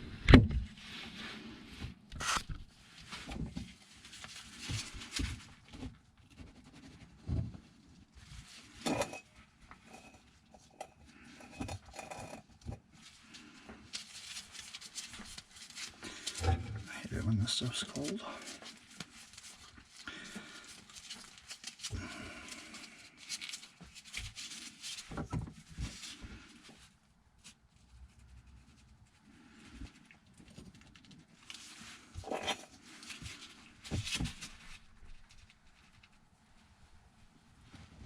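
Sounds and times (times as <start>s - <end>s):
pipes and tools clattering: 8.8s - 12.7s.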